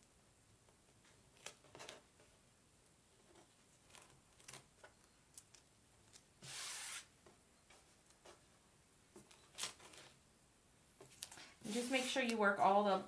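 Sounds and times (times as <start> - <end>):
plastic rustling and rubbing: 9.2 - 10.2, 11.0 - 12.6.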